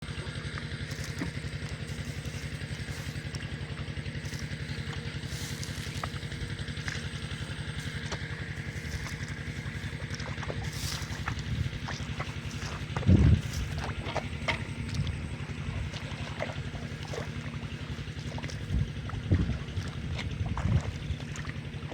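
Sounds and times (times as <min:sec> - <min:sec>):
small engine running: 0:00.0 - 0:21.9.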